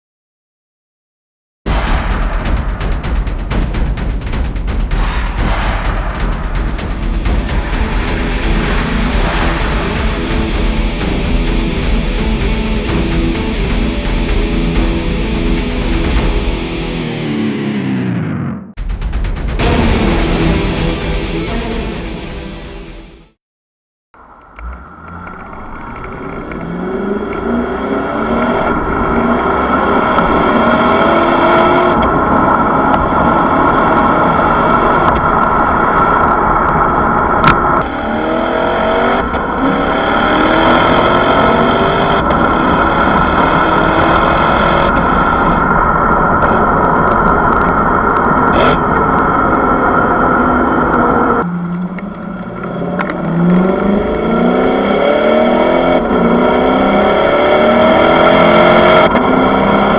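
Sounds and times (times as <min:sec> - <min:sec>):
car engine accelerating hard: 0:06.2 - 0:16.3, 0:24.2 - 0:59.9.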